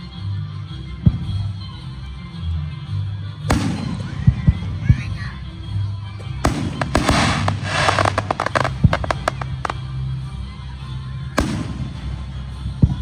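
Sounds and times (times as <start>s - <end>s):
firework bangs: 6.2s - 10.0s, 11.4s - 13.0s
fireworks crackling and popping: 6.2s - 10.2s, 11.4s - 13.0s.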